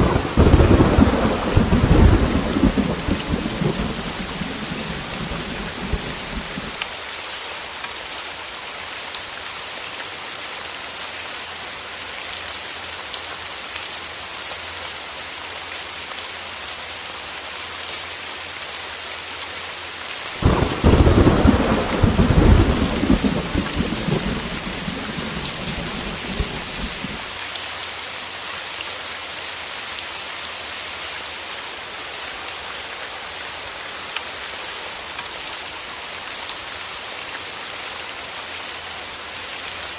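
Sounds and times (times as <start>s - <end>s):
thunder rumbling: 0.0s - 6.8s, 20.4s - 27.3s
heavy rain falling: 0.0s - 39.9s.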